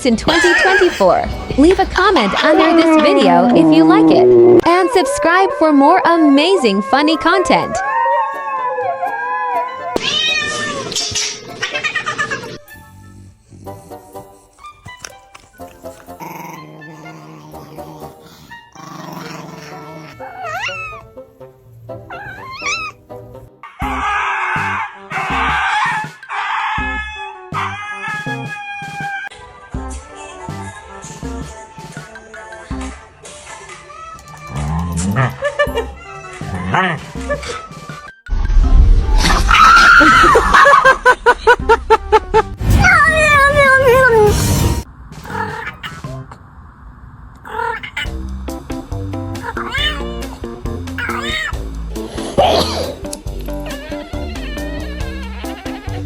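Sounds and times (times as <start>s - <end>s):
background music: 0.0s - 10.0s, 11.0s - 43.3s, 48.1s - 56.0s
cat meowing: 9.9s - 11.1s, 20.0s - 21.1s, 22.0s - 23.0s, 47.5s - 48.2s, 49.4s - 50.4s, 51.0s - 51.6s
pet animal wavering calls: 18.9s - 21.2s, 21.8s - 23.2s, 45.3s - 46.1s, 47.4s - 48.2s, 49.4s - 50.3s, 51.0s - 51.6s.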